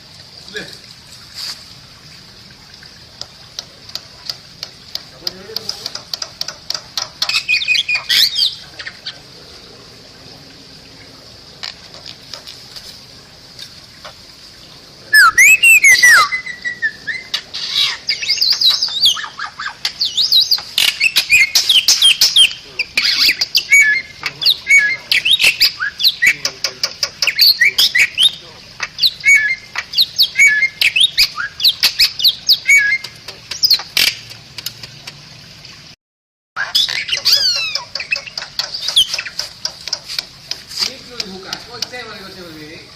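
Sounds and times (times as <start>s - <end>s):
bird whistles chirps and squawks: 7.2s - 9.2s, 15.1s - 26.5s, 27.2s - 34.2s, 36.6s - 39.4s.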